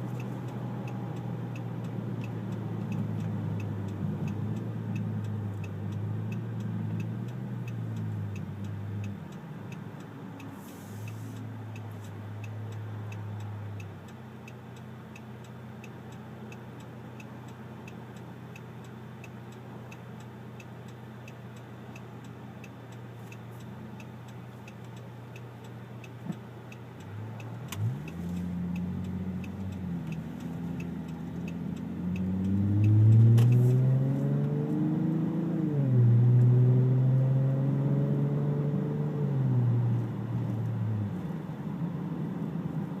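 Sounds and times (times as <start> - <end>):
regular engine ticking: 0.0 - 33.7
engine accelerating: 27.0 - 43.0.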